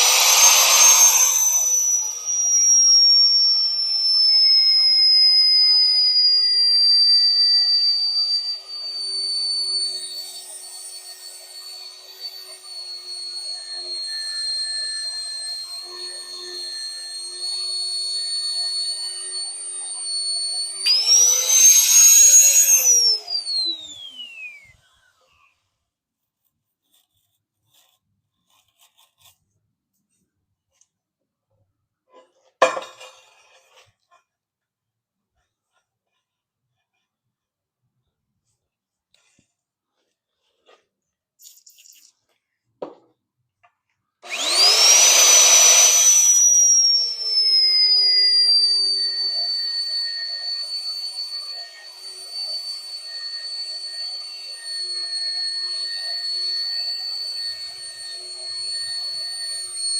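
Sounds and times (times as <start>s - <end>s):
electric drill drilling steel: 0.0s - 25.3s, 44.2s - 59.9s.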